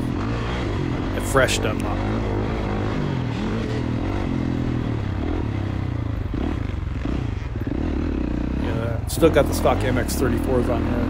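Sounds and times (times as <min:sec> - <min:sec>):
two-stroke dirt bike engine revving: 0:00.0 - 0:11.0.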